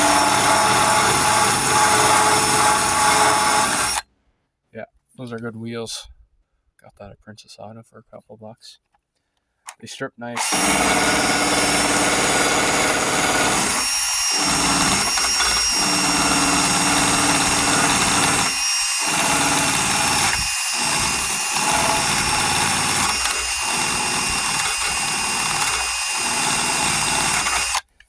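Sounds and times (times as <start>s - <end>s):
power tool stripping paint from steel: 0.0s - 4.0s, 10.4s - 28.0s.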